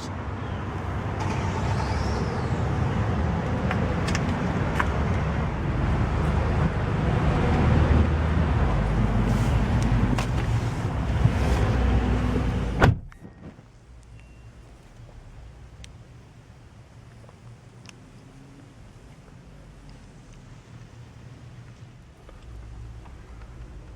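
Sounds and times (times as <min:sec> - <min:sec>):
car door shutting: 0:12.7 - 0:13.6.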